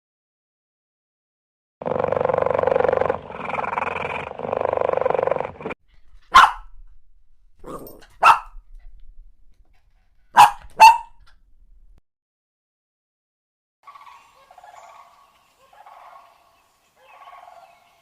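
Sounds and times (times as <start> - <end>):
dog growling: 1.8 - 6.7, 7.6 - 9.1
dog barking sharply: 6.1 - 6.9, 7.6 - 8.9, 10.3 - 11.4.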